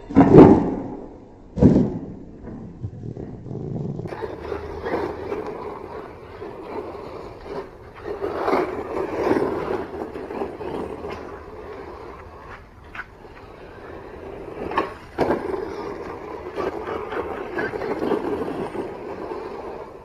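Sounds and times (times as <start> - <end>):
loud thud: 0.1 - 3.5.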